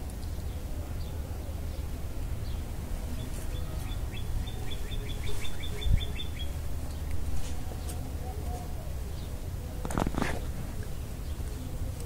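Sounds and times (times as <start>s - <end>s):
small bird chirping: 2.4s - 7.1s.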